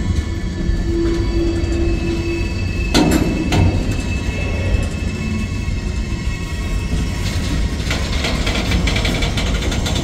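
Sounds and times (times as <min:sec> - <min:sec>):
train wheels rumbling on rails: 0:00.0 - 0:10.0
metallic rattling and clanking: 0:07.2 - 0:10.0.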